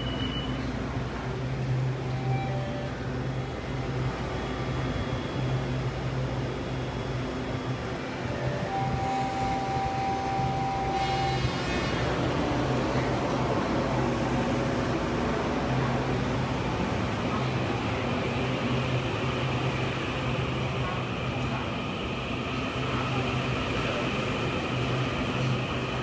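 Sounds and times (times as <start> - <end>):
train machinery hum: 0.0 - 26.0.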